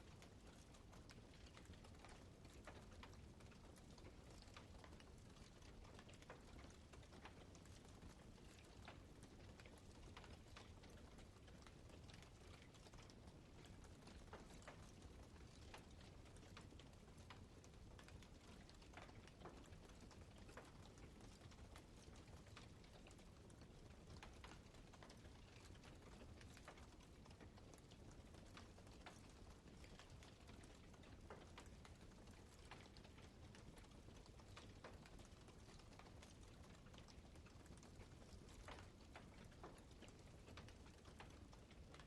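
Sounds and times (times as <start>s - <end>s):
low rumble of burning fire: 0.0s - 42.0s.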